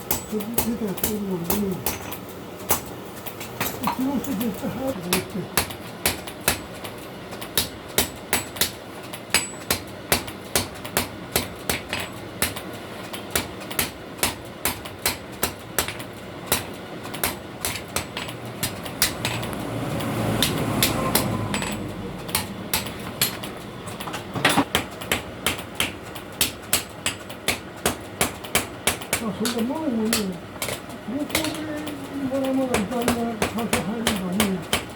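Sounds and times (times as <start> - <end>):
hammer striking steel on anvil: 0.0 - 2.9, 7.5 - 12.6, 20.4 - 23.5.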